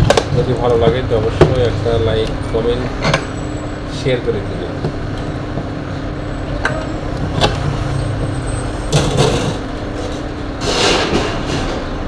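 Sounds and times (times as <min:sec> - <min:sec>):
constant hum: 0:00.0 - 0:12.0.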